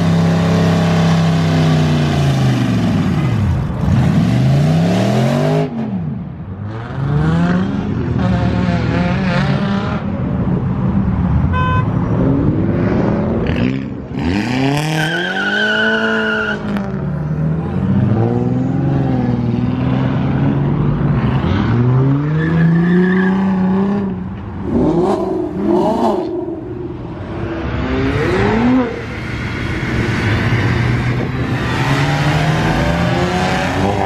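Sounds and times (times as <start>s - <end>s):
car engines revving hard: 0.0s - 34.0s.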